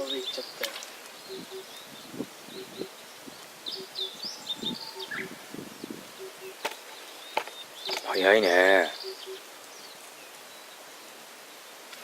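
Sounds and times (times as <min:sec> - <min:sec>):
high bird chirping: 0:01.2 - 0:10.7.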